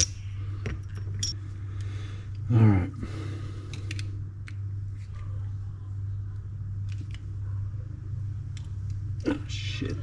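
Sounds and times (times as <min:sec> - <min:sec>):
low hum: 0:00.0 - 0:10.0
light clicks of small parts: 0:03.7 - 0:05.3.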